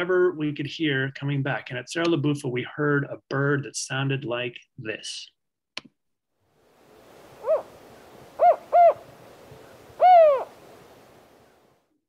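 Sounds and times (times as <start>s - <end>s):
faint hiss: 6.5s - 11.9s
owl hooting: 7.3s - 11.6s.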